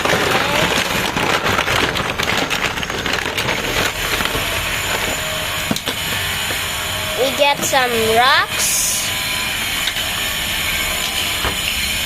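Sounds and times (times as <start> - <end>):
toys and rocks rummaged: 0.0 - 8.9
steady background noise: 0.0 - 12.0.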